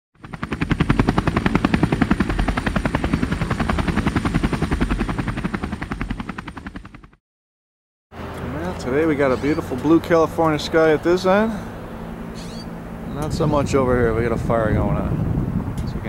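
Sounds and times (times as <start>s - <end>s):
helicopter rotor blades chopping: 0.2s - 7.2s.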